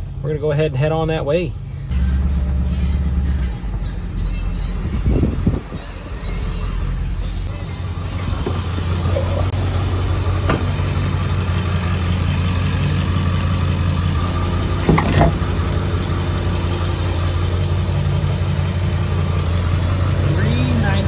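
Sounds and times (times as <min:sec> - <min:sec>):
diesel truck engine droning: 0:00.0 - 0:21.0
double thump: 0:10.4 - 0:10.9, 0:14.8 - 0:15.5.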